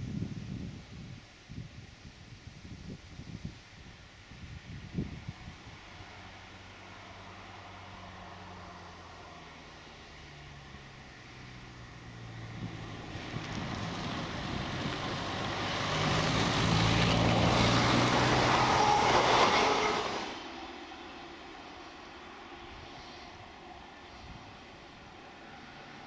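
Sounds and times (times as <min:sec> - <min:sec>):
diesel engine hum: 0:04.4 - 0:26.0
train rumbling on rails: 0:12.2 - 0:26.0.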